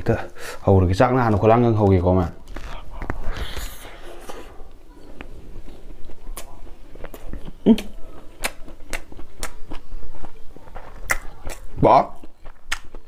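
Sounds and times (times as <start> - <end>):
man chewing with wet smacks: 4.7 - 13.0.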